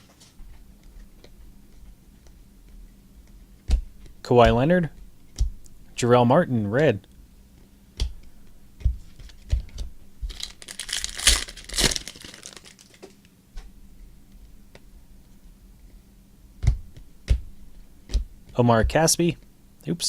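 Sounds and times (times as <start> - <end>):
cards tapping and knocking: 8.8 - 13.2, 16.6 - 19.1
foil wrapper crinkling and tearing: 10.2 - 13.2.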